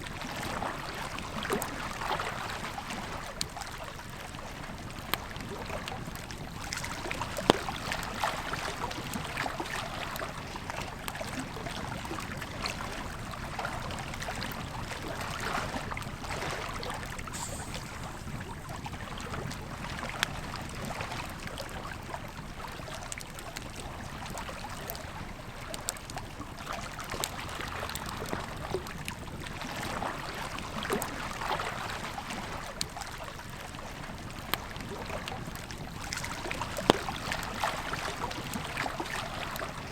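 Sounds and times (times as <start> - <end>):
river flowing: 16.2 - 20.0
campfire crackling and popping: 17.2 - 20.4.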